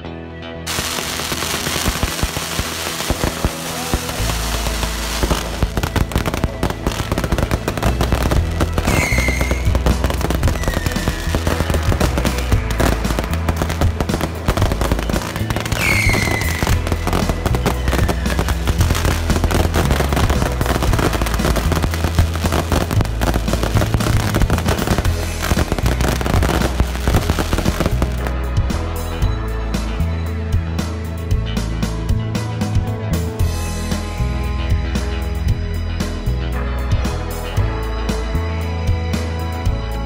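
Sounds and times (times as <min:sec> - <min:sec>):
music with bass line: 0:00.0 - 0:40.0
firecrackers crackling: 0:00.7 - 0:28.4
rocket whistles: 0:08.8 - 0:09.9, 0:10.5 - 0:11.5, 0:15.4 - 0:18.9.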